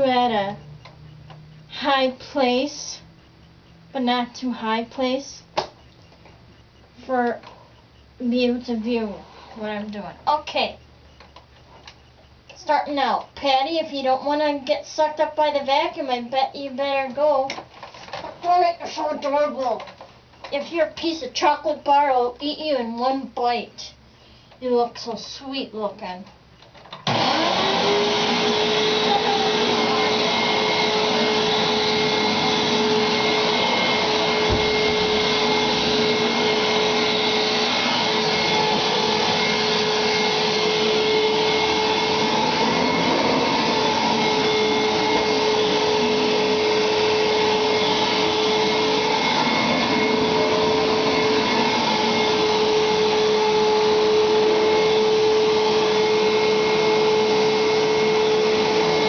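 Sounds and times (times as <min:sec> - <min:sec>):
vacuum cleaner running: 0:27.0 - 0:59.0.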